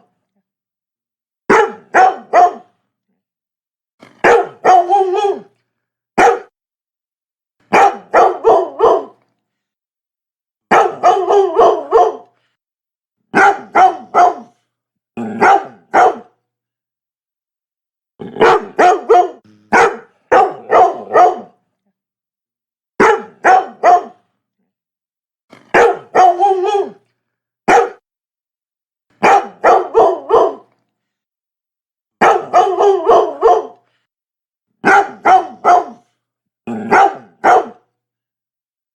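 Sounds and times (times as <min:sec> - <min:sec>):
dog barking: 0:01.5 - 0:02.7, 0:04.0 - 0:05.5, 0:06.2 - 0:06.5, 0:07.7 - 0:09.2, 0:10.7 - 0:12.3, 0:13.3 - 0:14.6, 0:15.3 - 0:16.4, 0:18.3 - 0:21.6, 0:23.0 - 0:24.3, 0:25.6 - 0:27.0, 0:27.7 - 0:28.0, 0:29.2 - 0:30.7, 0:32.2 - 0:33.8, 0:34.8 - 0:36.1, 0:36.7 - 0:37.9.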